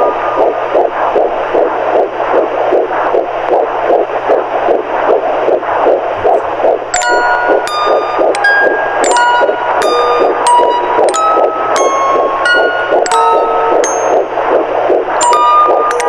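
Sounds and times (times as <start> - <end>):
rhythmic whooshing pulse: 0.0 - 16.0
bell-like lullaby notes: 6.9 - 14.5, 15.2 - 16.0.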